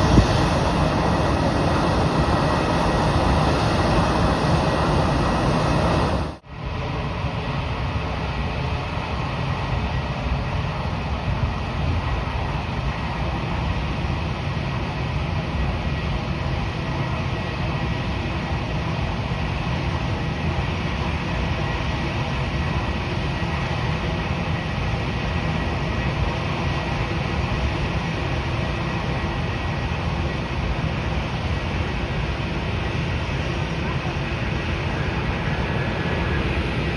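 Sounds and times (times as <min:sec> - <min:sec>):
jet engines running: 0:00.0 - 0:36.9.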